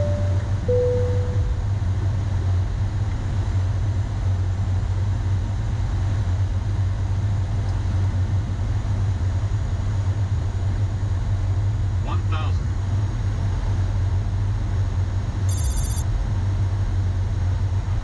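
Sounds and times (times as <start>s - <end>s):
chime tone: 0.0s - 1.6s, 15.5s - 16.0s
airflow and engine rumble: 0.0s - 18.0s.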